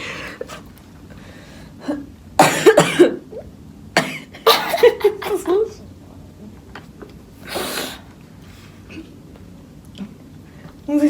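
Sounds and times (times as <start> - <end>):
person coughing: 2.4 - 3.2, 4.0 - 5.6.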